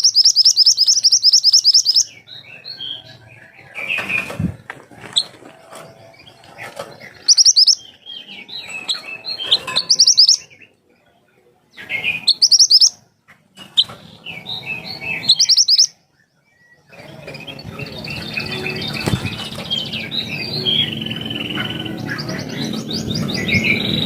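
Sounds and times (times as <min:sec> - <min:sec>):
songbird warbling: 0:00.0 - 0:04.2, 0:07.0 - 0:10.7, 0:11.8 - 0:13.0, 0:13.7 - 0:16.0.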